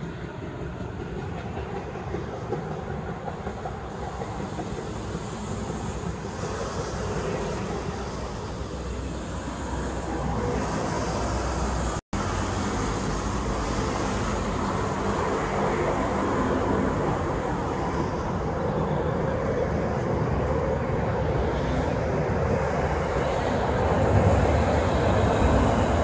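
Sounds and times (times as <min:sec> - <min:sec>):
diesel railcar running past: 0:00.0 - 0:26.0
electric train running by: 0:00.0 - 0:26.0.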